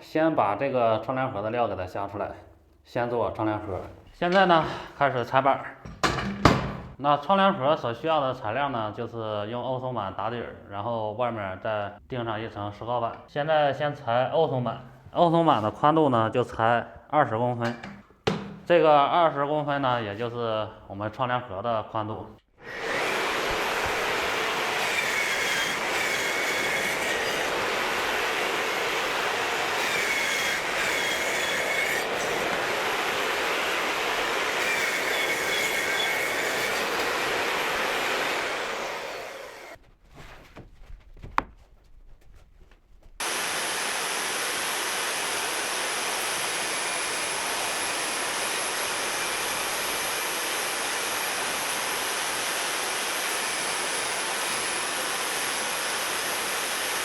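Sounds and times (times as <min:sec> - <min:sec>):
power saw cutting boards: 0:22.6 - 0:39.8, 0:43.2 - 0:57.0.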